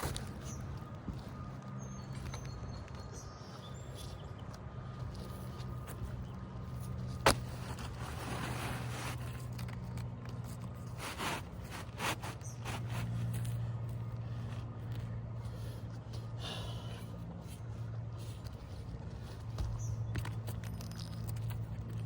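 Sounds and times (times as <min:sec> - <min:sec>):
steady low hum: 0:00.0 - 0:20.2
roof shingles scraping and rustling: 0:07.0 - 0:13.6.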